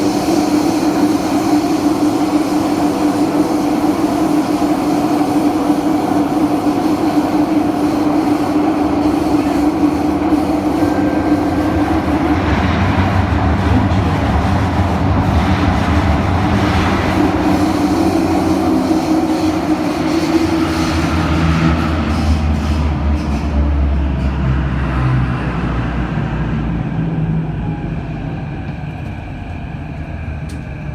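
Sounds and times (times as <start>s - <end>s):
train motor hum: 0.0s - 30.9s
wheel-on-rail rumble: 0.0s - 30.9s.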